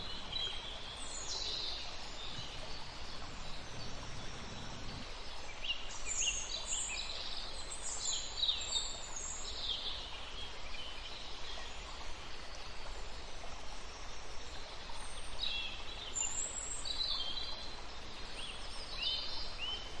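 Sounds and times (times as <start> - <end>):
birds chirping: 0.0 - 5.1
background hiss: 0.0 - 20.0.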